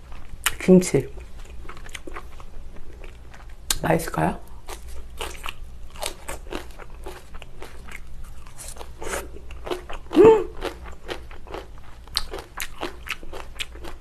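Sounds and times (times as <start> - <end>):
crunchy chewing: 0.0 - 3.8, 4.6 - 14.0
person humming: 10.1 - 10.6.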